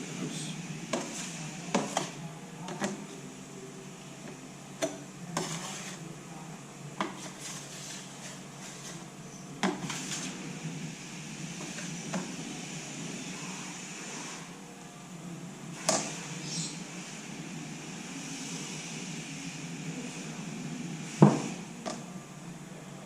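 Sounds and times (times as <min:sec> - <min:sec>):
scraping while mixing compound: 0:00.2 - 0:02.2, 0:05.3 - 0:06.1, 0:07.0 - 0:10.6.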